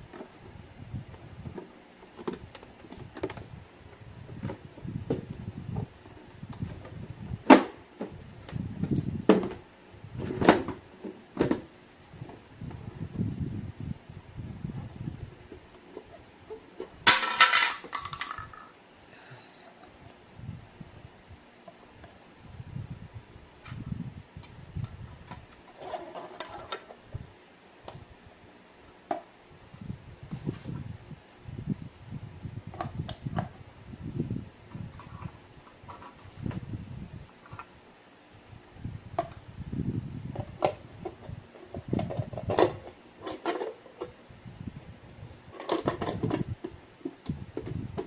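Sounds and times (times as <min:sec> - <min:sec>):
hard objects knocking: 0:17.1 - 0:18.7
rustling and shuffling: 0:23.2 - 0:27.3, 0:30.1 - 0:31.6, 0:34.6 - 0:37.8.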